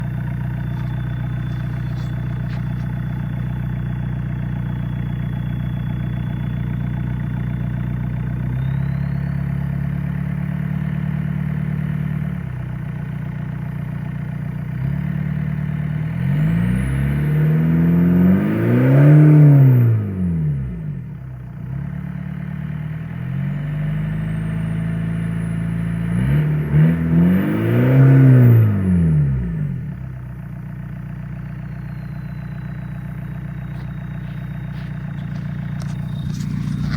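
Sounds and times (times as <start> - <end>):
diesel engine idling and revving: 0.0 - 36.9
faint high whine: 31.6 - 36.9.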